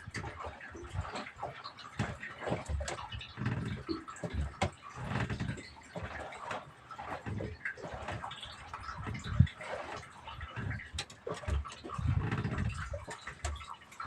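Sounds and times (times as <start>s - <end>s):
water slapping boat hull: 0.0s - 14.0s.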